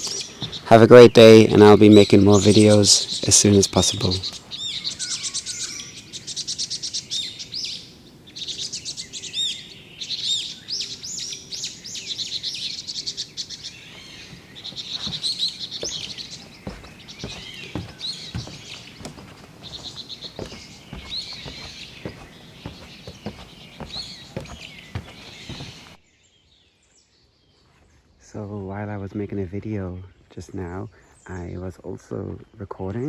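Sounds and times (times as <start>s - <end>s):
songbirds chirping: 0.0s - 26.4s
faint knocks or rustles: 13.9s - 26.0s.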